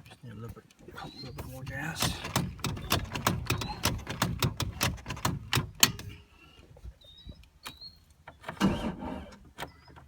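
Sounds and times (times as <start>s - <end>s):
faint bird chirps: 1.0s - 1.6s, 6.3s - 8.4s.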